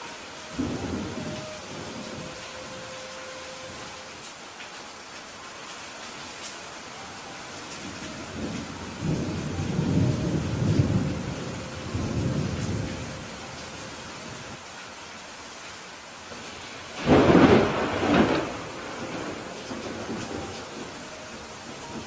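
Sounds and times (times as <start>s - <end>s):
steady rain falling: 0.0s - 22.0s
rolling thunder: 0.5s - 2.9s, 7.9s - 13.9s, 17.0s - 22.0s
sharp thunderclap: 17.0s - 20.2s.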